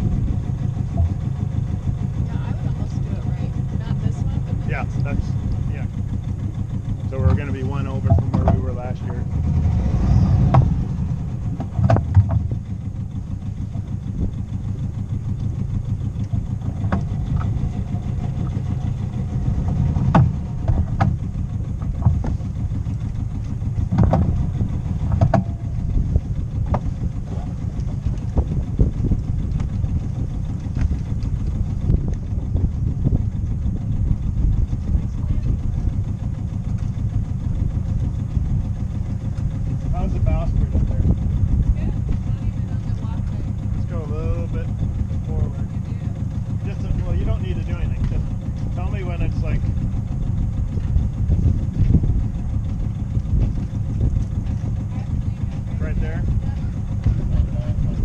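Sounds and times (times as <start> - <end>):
boat engine running at low speed: 0.0 - 58.0
sharp knocks: 20.1 - 21.2, 23.9 - 24.4.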